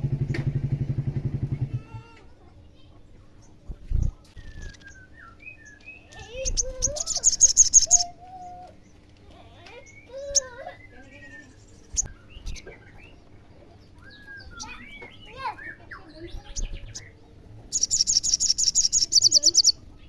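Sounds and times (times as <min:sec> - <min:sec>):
sharp bird chirps: 0:04.4 - 0:08.1, 0:14.0 - 0:19.8
sunbird chattering trill: 0:06.0 - 0:08.2, 0:14.1 - 0:19.8.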